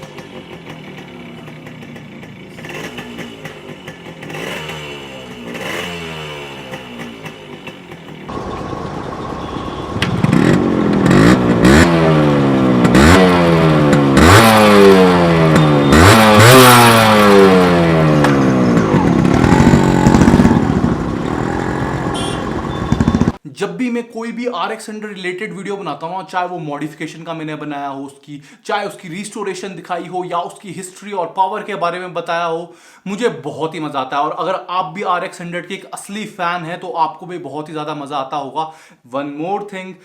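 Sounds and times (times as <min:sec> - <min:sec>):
two-stroke motorcycle engine revving: 0:00.0 - 0:23.4.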